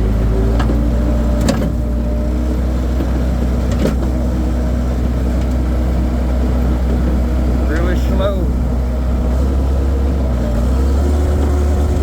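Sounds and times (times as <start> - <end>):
skid steer engine running: 0.0 - 12.0.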